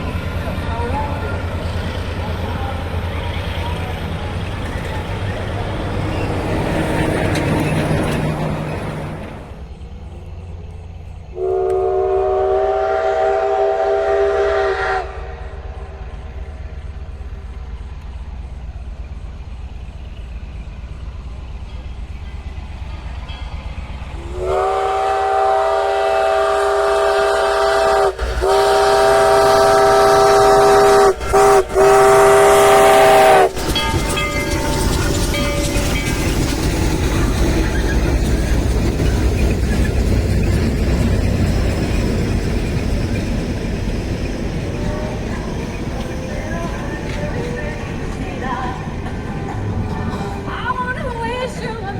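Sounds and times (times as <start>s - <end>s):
train rumbling: 0.0s - 51.9s
locomotive horn chime: 11.4s - 15.2s, 24.2s - 36.4s.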